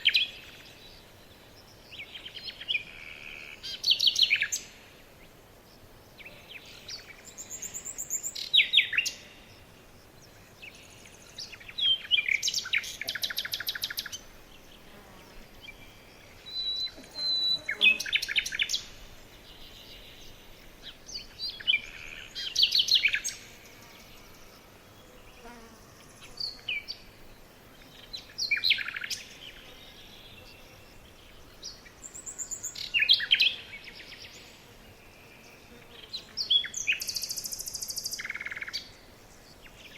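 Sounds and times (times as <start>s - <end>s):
songbird trilling: 15.7s - 18.9s.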